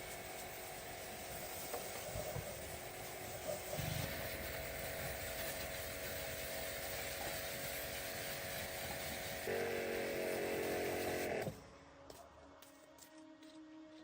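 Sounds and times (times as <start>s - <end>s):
electric power tool whining: 9.2s - 11.6s.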